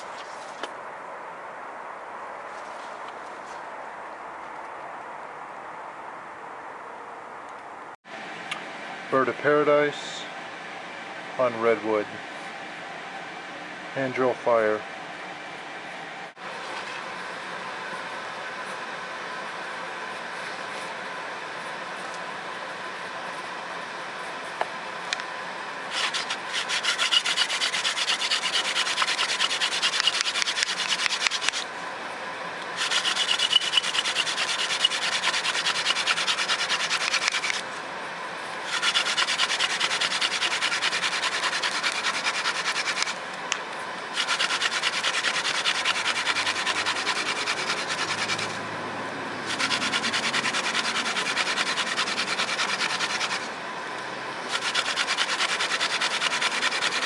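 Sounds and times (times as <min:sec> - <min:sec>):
spindle rubbing on wood: 0:25.9 - 0:31.7, 0:32.8 - 0:37.6, 0:38.6 - 0:43.2, 0:44.1 - 0:48.6, 0:49.4 - 0:53.5, 0:54.5 - 0:57.0.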